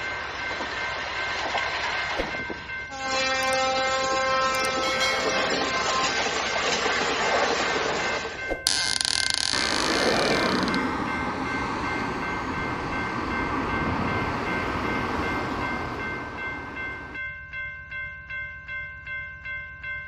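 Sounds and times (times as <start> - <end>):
crossing bell ringing: 0.0 - 20.0
train rumbling past: 10.2 - 17.2.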